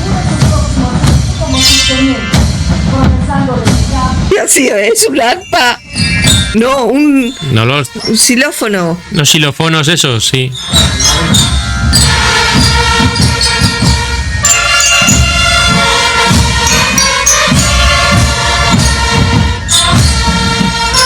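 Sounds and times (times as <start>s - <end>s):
drums beating: 0.0s - 21.0s
military marching band: 0.0s - 21.0s
bell-lyre tones: 4.3s - 21.0s.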